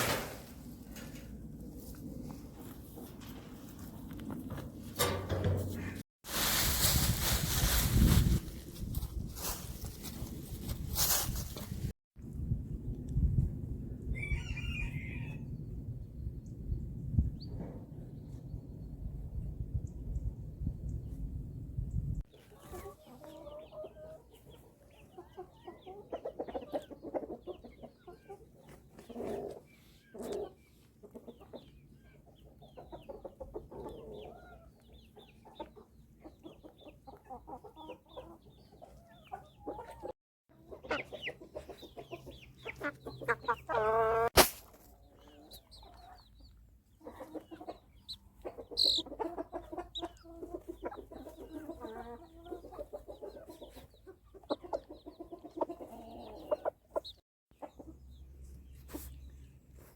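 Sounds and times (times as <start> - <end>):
drawn-out chicken call: 14.2 - 15.5, 37.2 - 44.3, 47.0 - 57.2
chickens clucking: 22.3 - 58.3.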